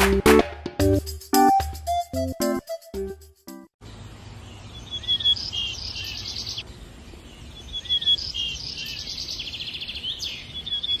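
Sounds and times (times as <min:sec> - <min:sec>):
songbird singing: 0:03.8 - 0:11.0.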